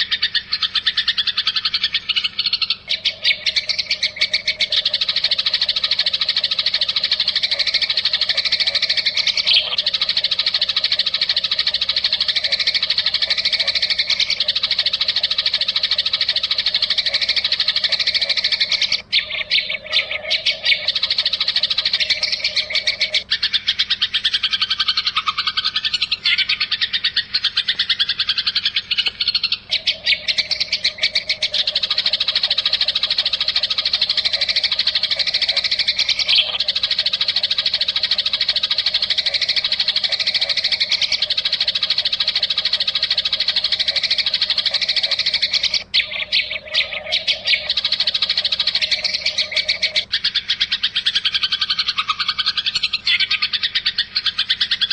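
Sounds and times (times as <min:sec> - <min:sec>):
songbird trilling and chirping: 0:00.0 - 0:54.9.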